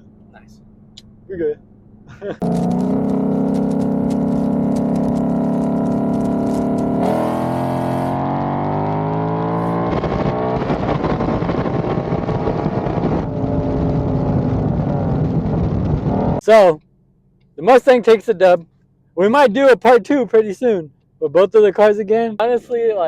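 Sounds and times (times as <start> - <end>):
car engine accelerating: 0.0 - 16.4.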